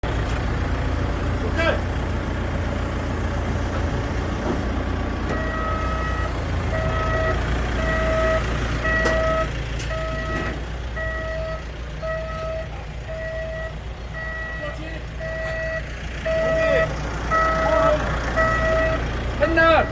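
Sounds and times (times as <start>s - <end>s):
heavy vehicle engine rumbling: 0.0s - 19.9s
reversing alarm beeping: 5.3s - 19.9s.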